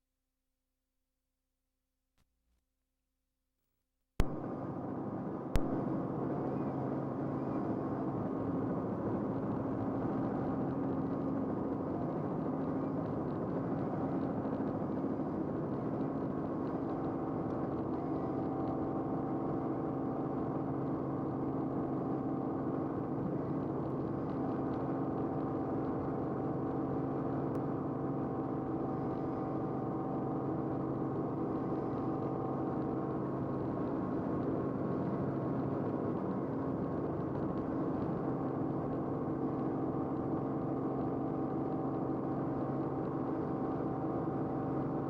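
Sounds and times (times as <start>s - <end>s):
sharp click: 4.2s - 4.4s, 5.6s - 5.8s
aircraft engine drone: 4.2s - 45.0s.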